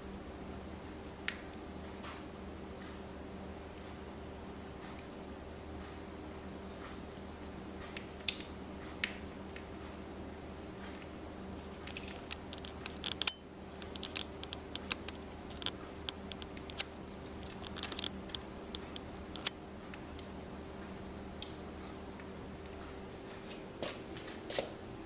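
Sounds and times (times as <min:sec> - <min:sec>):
low room hum: 0:00.0 - 0:25.0
beak clicks and feather crackles: 0:00.4 - 0:03.0, 0:05.8 - 0:10.1, 0:10.7 - 0:23.8.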